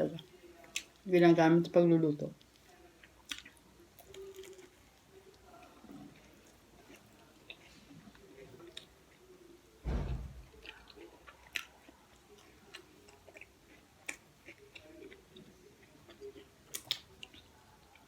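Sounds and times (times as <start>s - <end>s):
person chewing bread: 2.4s - 9.5s, 10.4s - 18.0s
dull low thump: 9.8s - 10.6s.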